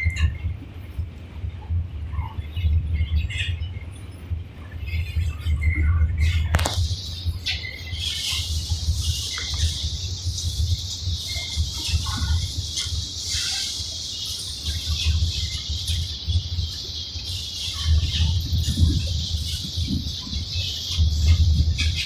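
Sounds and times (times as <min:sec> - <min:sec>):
steady high hiss: 0:06.6 - 0:22.0.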